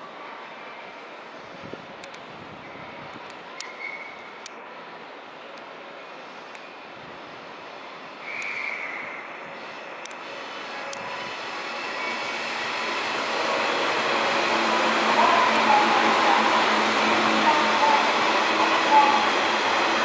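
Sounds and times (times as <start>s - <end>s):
electric train passing: 0.6s - 20.0s.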